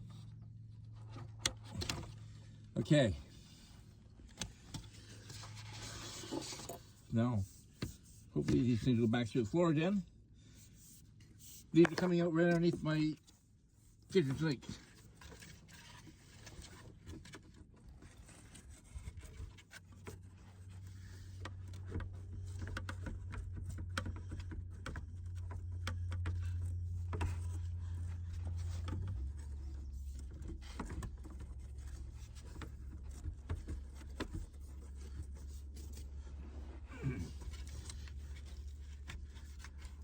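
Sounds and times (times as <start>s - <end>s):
low steady hum: 0.0s - 40.0s
plastic tubing scraping and knocking: 4.3s - 9.2s, 14.3s - 40.0s.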